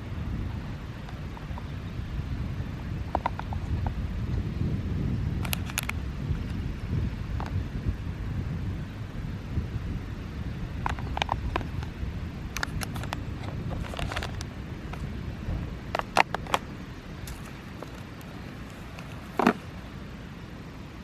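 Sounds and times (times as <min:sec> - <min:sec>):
bicycle road noise: 0:00.0 - 0:21.0
wind rumble: 0:00.0 - 0:21.0
sharp clicks and rattles: 0:12.6 - 0:15.1, 0:15.9 - 0:19.8.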